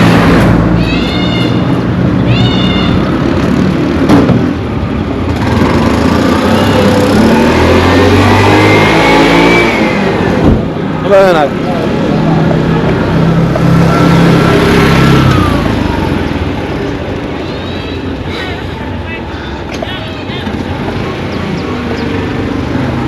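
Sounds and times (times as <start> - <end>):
road traffic engines: 0.0 - 23.0
vehicle accelerating past: 5.1 - 17.0.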